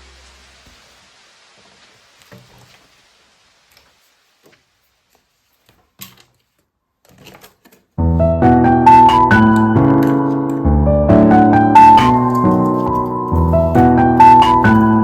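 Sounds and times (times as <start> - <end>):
piano music: 8.0 - 15.0.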